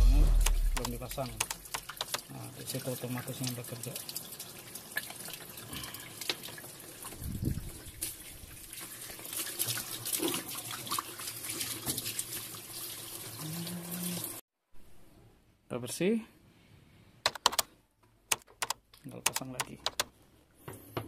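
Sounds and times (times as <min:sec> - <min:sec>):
tap water running and splashing: 0:00.8 - 0:14.4.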